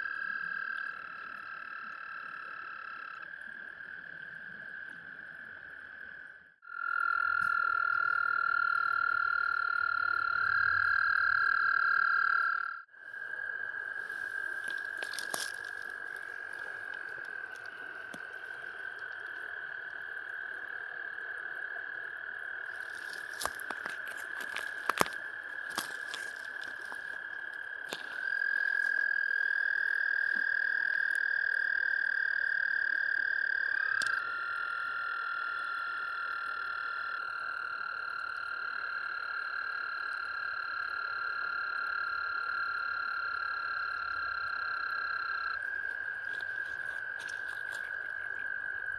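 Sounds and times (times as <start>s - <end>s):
frogs trilling in chorus: 0.0s - 48.9s.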